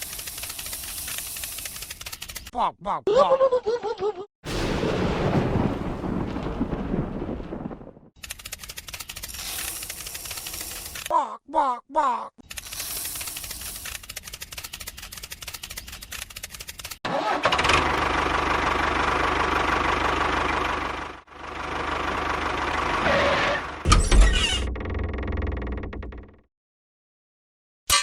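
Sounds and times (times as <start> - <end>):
rapid clicking: 0.0 - 2.5, 8.2 - 11.1, 12.4 - 17.0
small engine running: 0.0 - 2.5, 8.3 - 11.1, 12.4 - 23.8.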